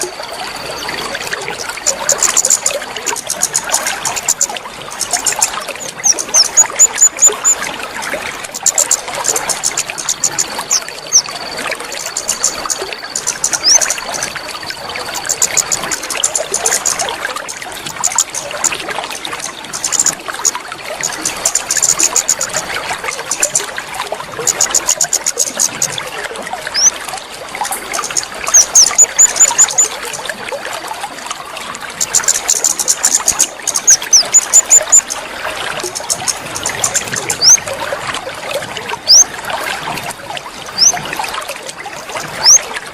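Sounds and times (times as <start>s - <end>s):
water trickling and splashing: 0.0s - 42.9s
birds chirping: 2.1s - 7.6s, 8.5s - 22.6s, 26.7s - 27.0s, 27.9s - 29.9s, 32.0s - 35.2s, 35.9s - 37.6s, 39.0s - 39.3s, 40.7s - 41.0s, 42.4s - 42.6s
thin level whistles: 10.0s - 14.7s, 28.5s - 29.9s, 39.1s - 39.3s, 40.8s - 41.0s, 42.4s - 42.6s.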